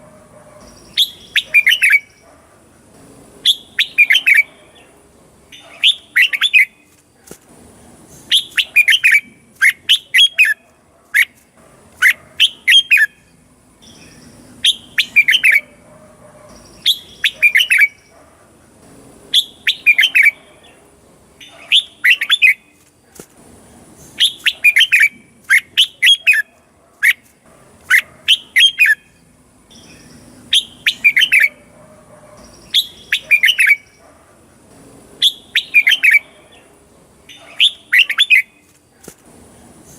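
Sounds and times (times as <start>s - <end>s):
bird singing whistled phrases: 0.6s - 2.2s, 3.4s - 4.5s, 8.3s - 10.6s, 13.9s - 15.7s, 16.7s - 18.1s, 19.3s - 20.4s, 24.2s - 26.5s, 29.7s - 31.6s, 32.5s - 34.0s, 35.2s - 36.3s.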